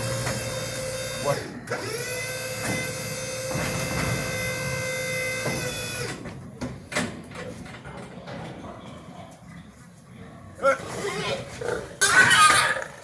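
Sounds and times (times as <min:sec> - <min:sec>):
small electric motor whining: 0:00.0 - 0:06.1.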